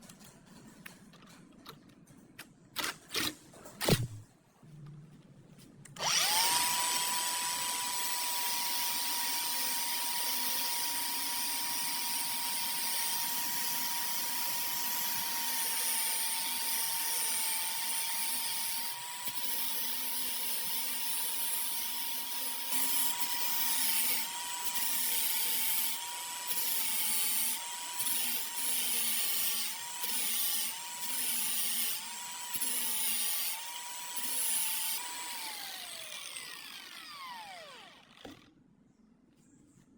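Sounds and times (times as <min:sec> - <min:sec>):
power tool motor whining: 0:06.0 - 0:11.0, 0:29.3 - 0:38.5.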